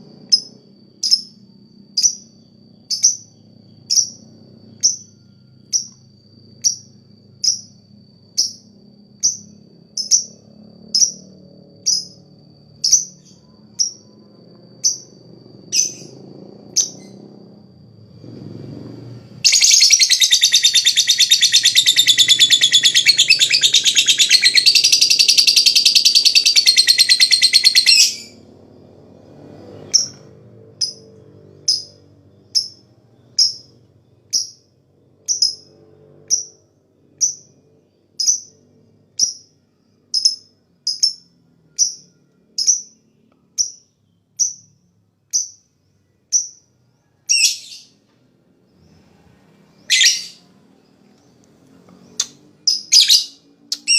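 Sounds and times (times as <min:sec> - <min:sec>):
bird chirps: 0:08.4 - 0:17.4, 0:19.4 - 0:28.4, 0:29.7 - 0:48.0, 0:48.7 - 0:53.9.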